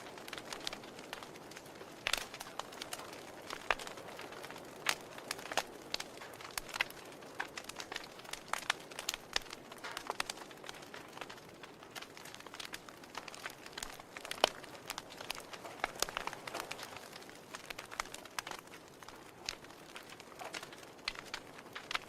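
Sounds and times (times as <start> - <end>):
soft steady hiss: 0.0 - 22.0
wood fire crackling: 0.0 - 22.0.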